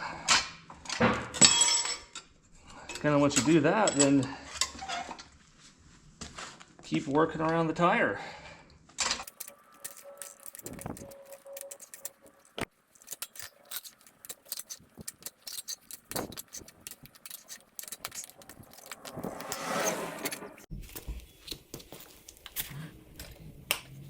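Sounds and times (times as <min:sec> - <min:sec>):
metal tire spoons clinking on rim: 0:09.2 - 0:20.6
tire rubber scraping over rim: 0:13.9 - 0:20.7.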